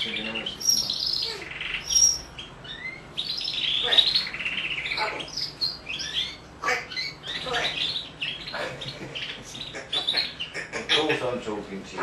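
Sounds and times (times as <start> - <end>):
parrot chirping and whistling: 0.0 - 8.6.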